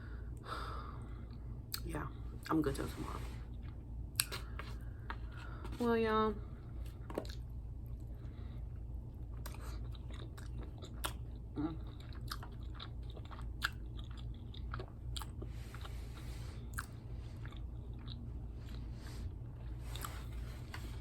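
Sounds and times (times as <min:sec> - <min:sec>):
low steady hum: 0:00.0 - 0:21.0
person chewing crunchy food: 0:03.5 - 0:05.8, 0:06.9 - 0:21.0.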